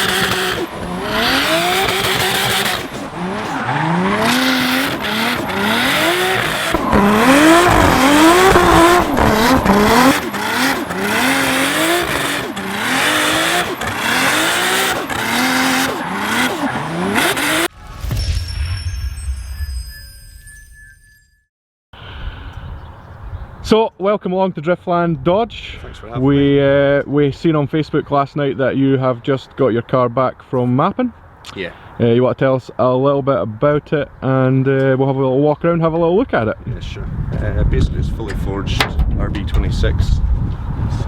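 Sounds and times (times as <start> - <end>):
car engine revving hard: 0.0 - 17.7
tyre squeal: 2.0 - 12.4.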